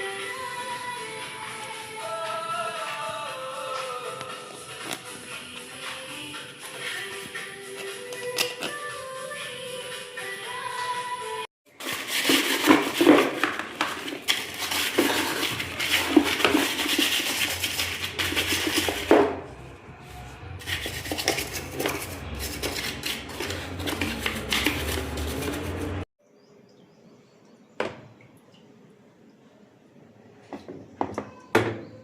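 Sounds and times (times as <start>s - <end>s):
hard objects clattering and scraping: 11.7s - 26.1s.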